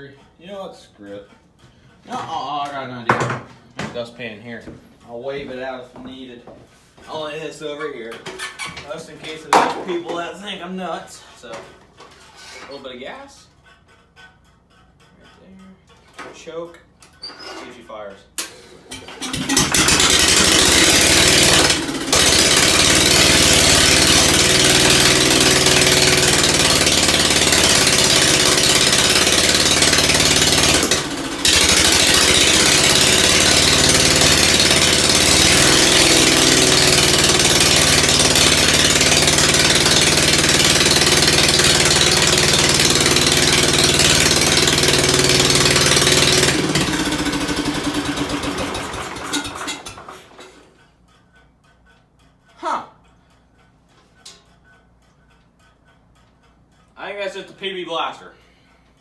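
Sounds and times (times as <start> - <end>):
car engine running: 19.4 - 50.1.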